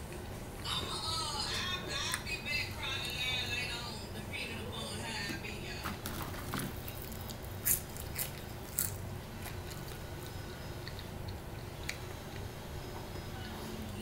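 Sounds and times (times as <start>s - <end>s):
person chewing crunchy food: 6.2s - 13.1s.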